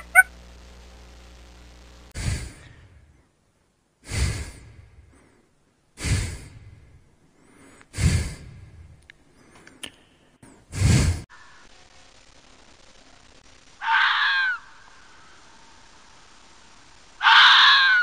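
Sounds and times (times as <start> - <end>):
loud breathy huffs: 2.2 - 3.0, 4.0 - 9.8, 10.6 - 11.3.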